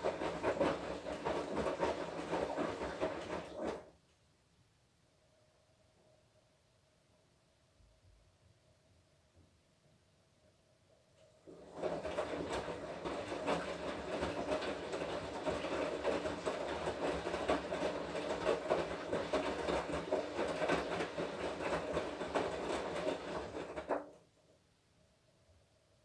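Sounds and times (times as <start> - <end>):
clothes and water churning: 0.0 - 3.9, 11.4 - 24.1.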